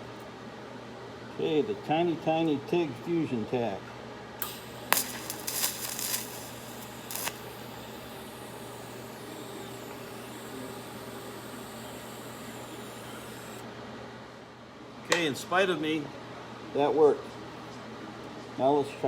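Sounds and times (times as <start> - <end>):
low hum: 4.4 - 13.6
steady hiss: 4.4 - 13.6
welding arc crackling: 4.4 - 13.6.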